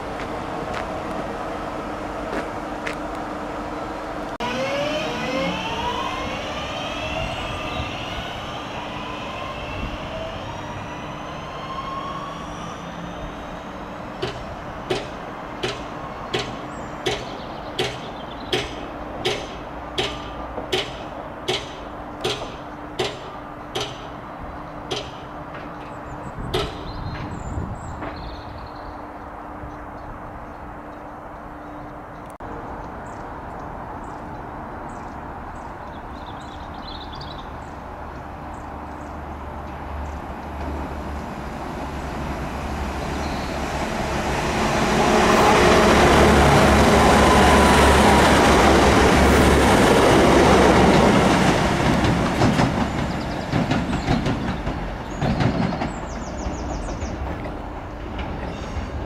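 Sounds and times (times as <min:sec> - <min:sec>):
train passing: 0:00.0 - 0:59.0
wheels clicking over rail joints: 0:12.5 - 0:28.4, 0:46.0 - 0:59.0.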